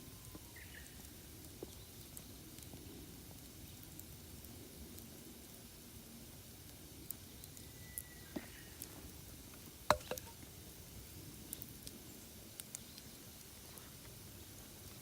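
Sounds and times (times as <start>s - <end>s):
firewood crackling and popping: 0.0s - 15.0s
faint thin whistle: 7.6s - 8.7s.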